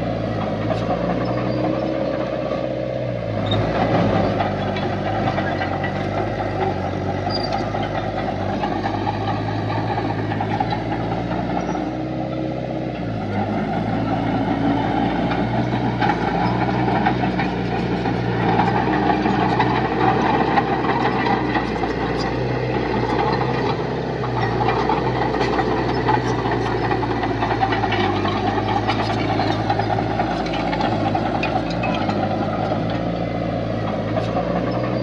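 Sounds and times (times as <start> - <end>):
heavy diesel engine running: 0.0 - 35.0.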